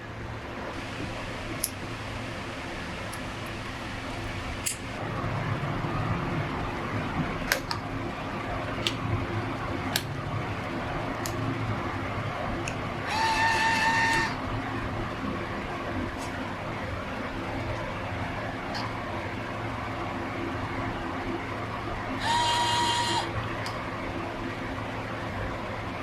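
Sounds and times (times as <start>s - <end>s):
steady background hum: 0.0s - 26.0s
pitched whine: 10.2s - 15.8s, 22.0s - 23.5s.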